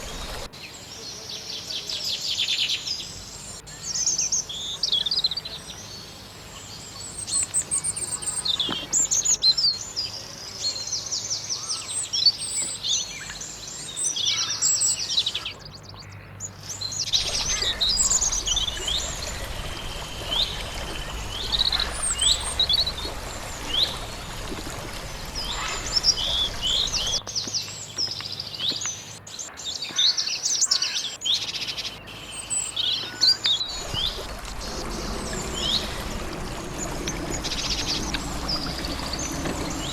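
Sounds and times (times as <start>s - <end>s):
background hiss: 0.0s - 0.9s, 17.0s - 27.2s, 33.5s - 39.9s
songbirds chirping and singing: 0.0s - 1.8s, 16.7s - 39.9s.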